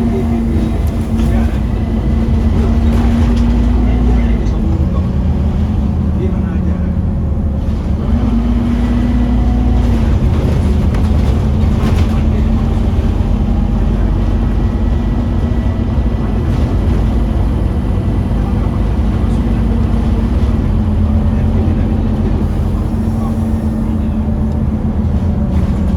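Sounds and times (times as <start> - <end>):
bus diesel engine droning: 0.0 - 25.9.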